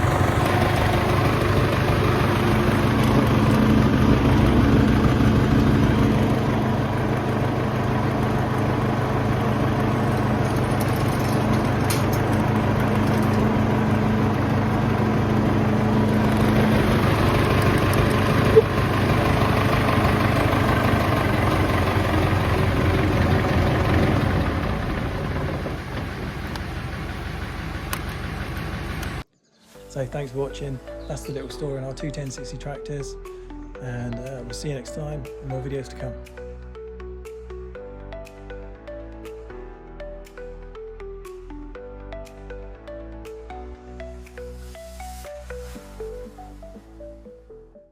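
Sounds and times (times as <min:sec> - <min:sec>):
tractor engine running: 0:00.0 - 0:29.3.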